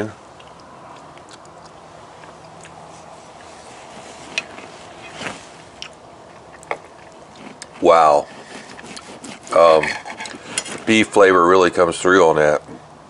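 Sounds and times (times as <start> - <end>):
low room hum: 0.0 - 13.0
person chewing food: 0.3 - 4.7, 5.7 - 9.6
knife and fork on a plate: 8.5 - 11.0.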